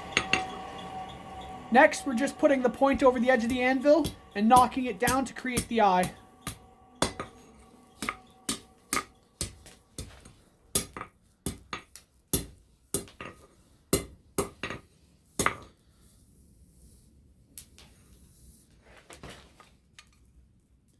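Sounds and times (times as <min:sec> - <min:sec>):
faint metallic ringing: 0:00.0 - 0:10.8
hammer striking hot steel on anvil: 0:00.0 - 0:11.8.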